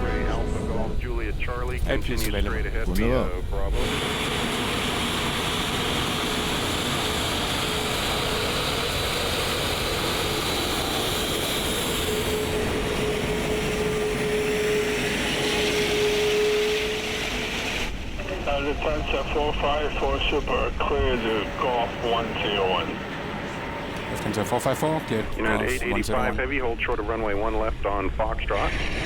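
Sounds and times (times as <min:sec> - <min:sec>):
jet engines running: 0:00.0 - 0:29.0.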